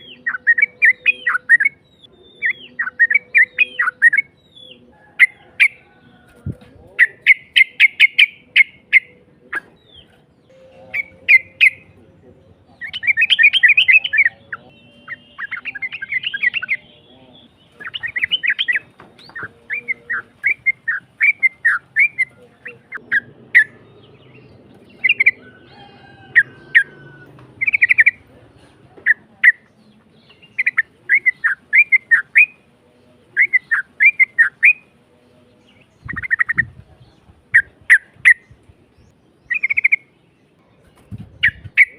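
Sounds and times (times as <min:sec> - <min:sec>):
bird bubbly chattering song: 0:12.8 - 0:25.4, 0:35.9 - 0:36.7, 0:37.5 - 0:40.1.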